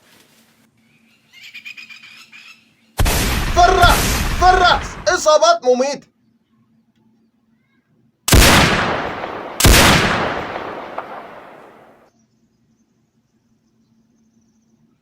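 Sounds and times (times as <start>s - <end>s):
rifle shots with rolling echo: 3.0s - 5.2s, 8.3s - 12.1s.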